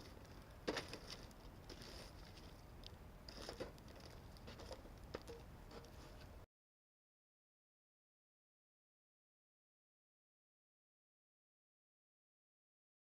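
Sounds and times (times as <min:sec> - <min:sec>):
campfire crackling and popping: 0:00.0 - 0:06.0.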